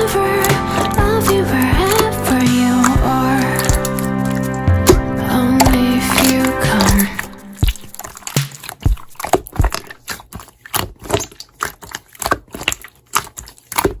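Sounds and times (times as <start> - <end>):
slime squeezed by hand: 5.6 - 14.0.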